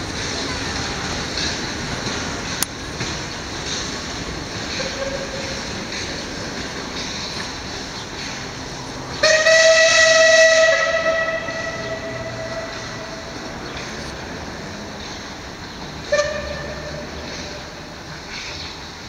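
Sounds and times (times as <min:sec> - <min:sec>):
steam locomotive whistle blast: 0:09.2 - 0:13.2, 0:16.1 - 0:17.2.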